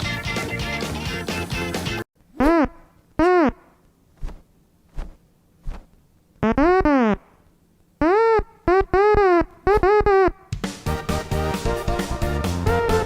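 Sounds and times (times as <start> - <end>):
synthesizer-like honks: 10.9 - 13.0.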